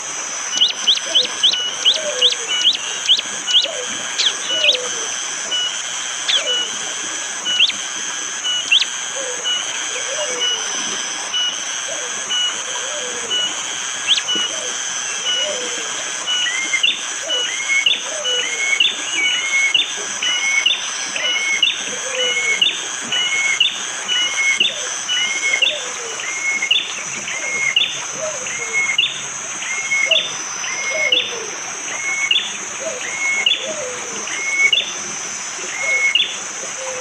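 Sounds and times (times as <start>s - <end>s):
forest background hiss: 0.0s - 37.0s
bird sharp repeated call: 0.5s - 6.8s, 8.4s - 10.7s, 12.0s - 31.3s
lower falling bird notes: 0.5s - 6.8s, 7.4s - 34.9s.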